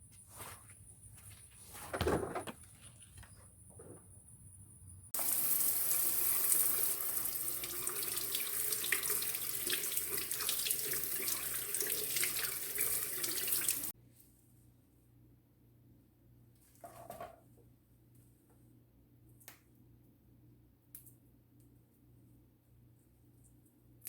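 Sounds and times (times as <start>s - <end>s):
water running hard from a tap: 5.2s - 13.9s.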